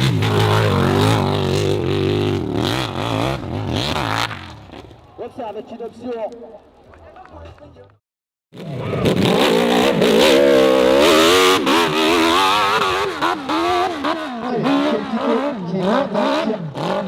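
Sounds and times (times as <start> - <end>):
motorcycle engine revving: 0.0 - 5.0, 8.6 - 17.0.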